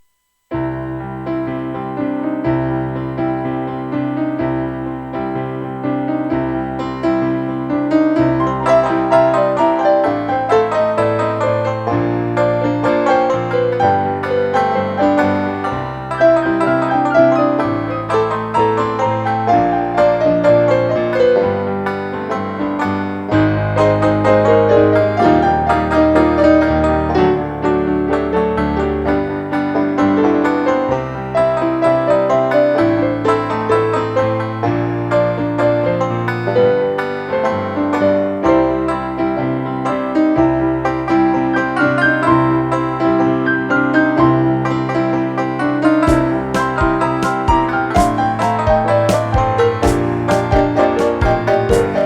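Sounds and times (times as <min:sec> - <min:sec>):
honky-tonk piano chords: 0:00.5 - 0:52.0.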